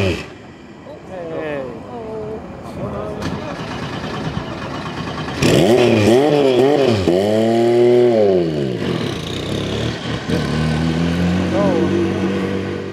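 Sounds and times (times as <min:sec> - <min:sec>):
engine revving hard: 0:05.2 - 0:12.9.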